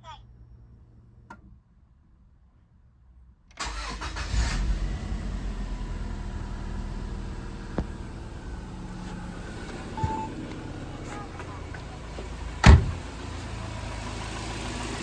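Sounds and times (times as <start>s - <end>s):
car engine starting and idling: 3.5s - 15.0s.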